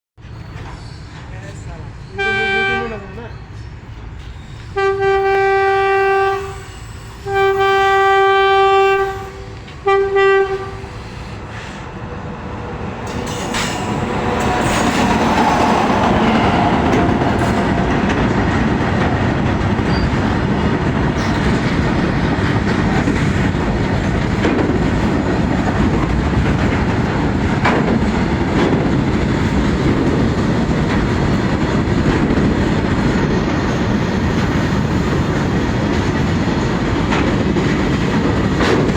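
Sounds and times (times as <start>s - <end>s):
train wagons rolling on rails: 0.2s - 38.9s
train horn blasts: 2.2s - 3.1s, 4.7s - 11.2s.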